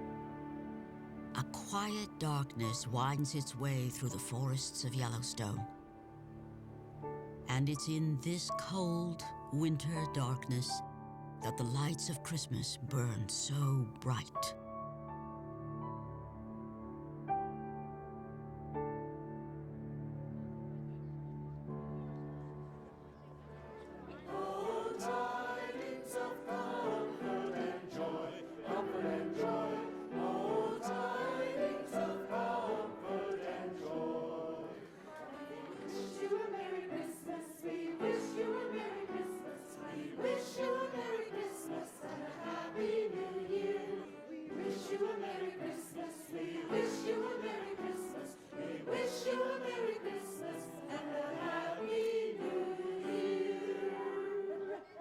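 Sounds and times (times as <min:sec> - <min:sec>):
choir singing in harmony: 0:00.0 - 0:02.0, 0:18.9 - 0:55.0.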